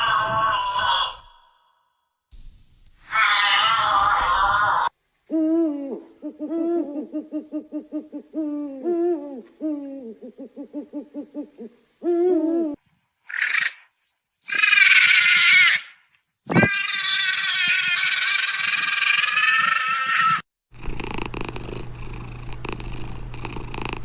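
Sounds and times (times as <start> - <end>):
harsh animal calls: 0.0 - 1.9, 3.0 - 5.0, 13.2 - 21.0
owl hooting and trilling: 3.0 - 13.8.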